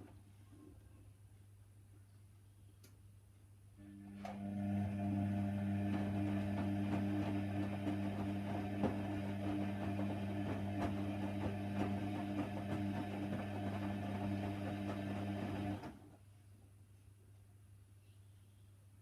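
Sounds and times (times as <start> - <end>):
washer dryer humming: 3.8 - 16.0.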